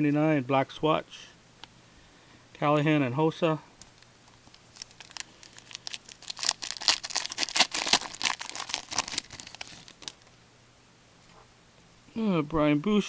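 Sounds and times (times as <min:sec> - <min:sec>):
foil wrapper tearing and crinkling: 0:04.2 - 0:10.3.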